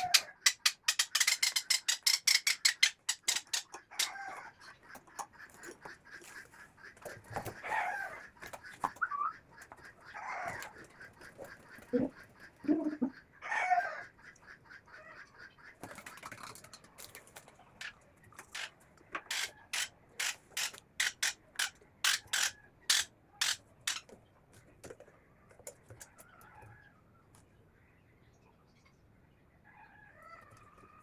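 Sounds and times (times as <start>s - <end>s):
short raspy clicks: 0.0s - 5.8s, 17.8s - 24.2s
bird squawk: 0.0s - 16.5s
conure chicks begging: 0.0s - 31.0s.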